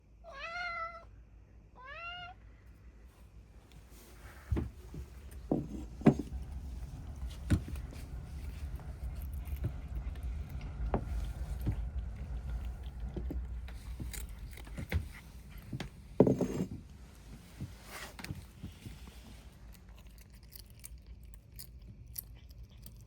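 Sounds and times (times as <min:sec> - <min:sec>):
cat meowing: 0:00.3 - 0:01.1, 0:01.8 - 0:02.4
low rumble: 0:04.0 - 0:16.2.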